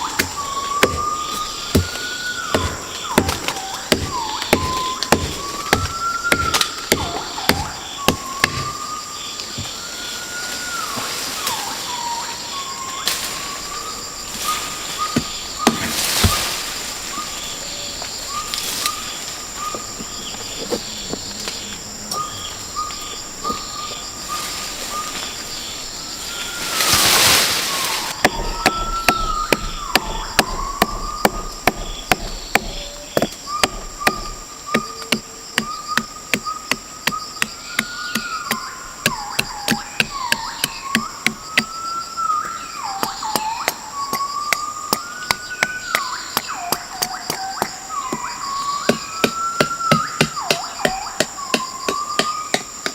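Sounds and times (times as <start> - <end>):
bird whistling notes: 0.0 - 19.9, 26.0 - 52.7
high insect drone: 0.0 - 52.9
sharp knocks and clicks: 28.2 - 41.7.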